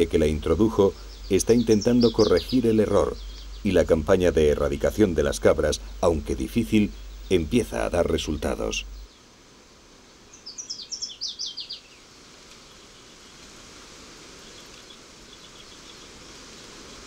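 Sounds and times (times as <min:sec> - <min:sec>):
songbird singing high notes: 0:00.0 - 0:09.2, 0:10.3 - 0:12.0
steady outdoor hiss: 0:00.0 - 0:17.0
faint high ticking: 0:00.2 - 0:03.8.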